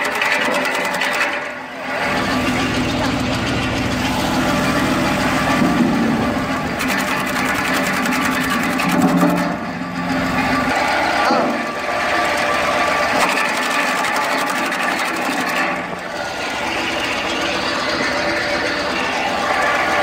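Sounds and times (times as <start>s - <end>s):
log cutting machine clatter: 0.0s - 20.0s
heavy low hum: 1.7s - 13.0s.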